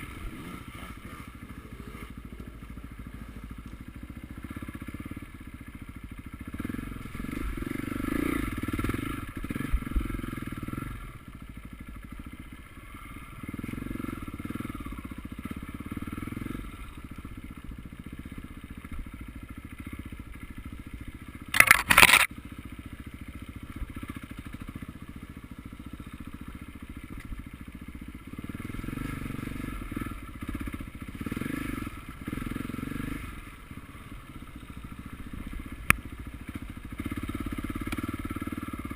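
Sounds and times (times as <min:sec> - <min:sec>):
motorcycle engines revving: 0:00.0 - 0:38.9.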